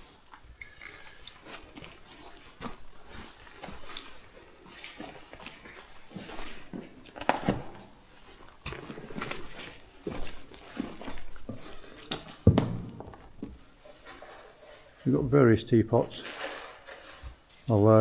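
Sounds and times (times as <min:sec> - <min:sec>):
footsteps scuffing on rock: 0:08.5 - 0:14.2.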